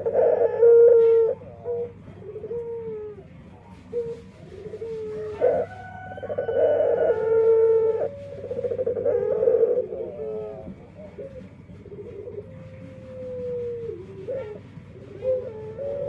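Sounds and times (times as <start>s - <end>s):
dove cooing: 0.0s - 16.0s.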